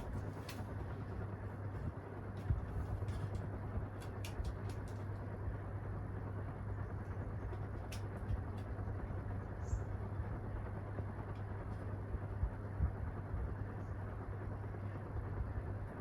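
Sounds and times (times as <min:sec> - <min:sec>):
ceiling fan air rush: 0:00.0 - 0:16.0
low motor hum: 0:00.0 - 0:16.0.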